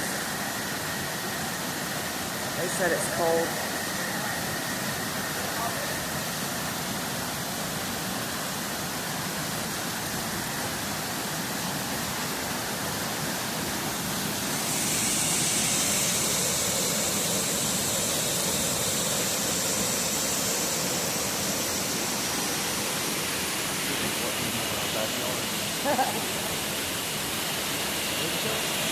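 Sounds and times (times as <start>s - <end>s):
waterfall rushing: 7.9s - 28.9s.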